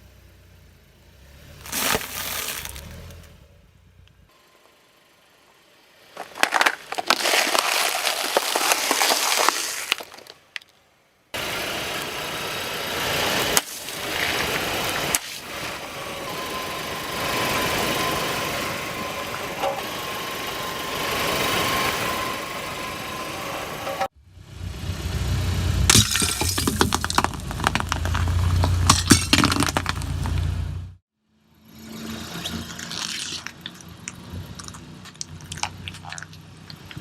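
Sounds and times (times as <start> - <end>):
objects crunching under car tyre: 1.6 - 3.4, 6.1 - 10.8, 13.4 - 15.6, 25.9 - 30.8, 32.5 - 37.0.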